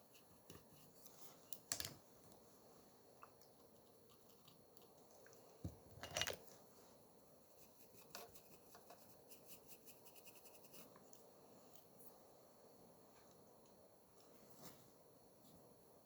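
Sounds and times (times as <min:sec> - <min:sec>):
small objects clicking and tapping: 0:01.5 - 0:02.0, 0:03.2 - 0:06.5.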